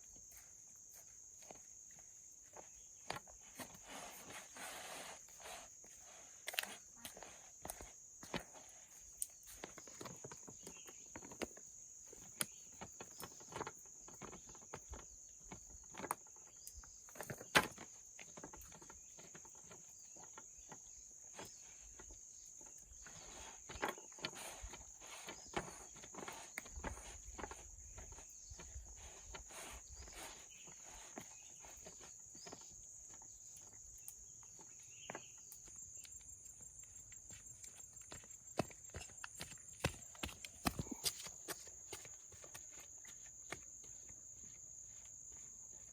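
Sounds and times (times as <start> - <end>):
footsteps: 34.6 - 45.9.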